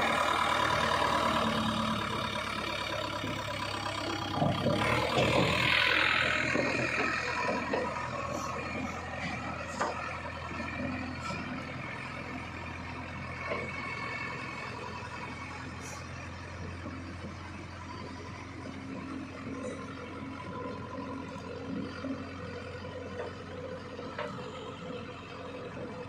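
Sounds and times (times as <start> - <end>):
heavy diesel machinery running: 0.0 - 26.0.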